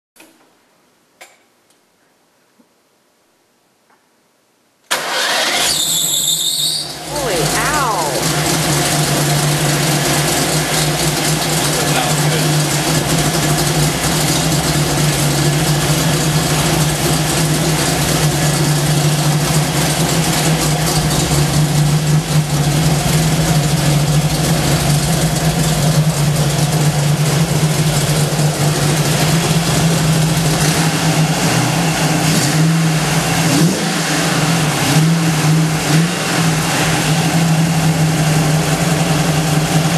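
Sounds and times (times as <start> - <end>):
car engine running: 6.9 - 39.9.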